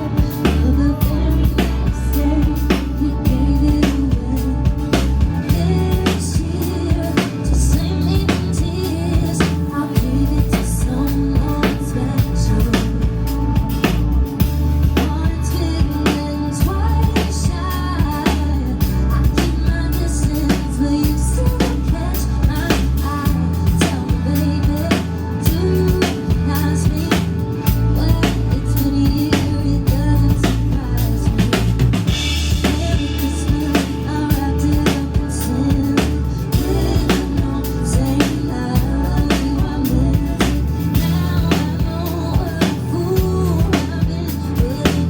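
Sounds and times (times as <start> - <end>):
band music: 0.0 - 45.0
steady drum beat: 0.0 - 45.0.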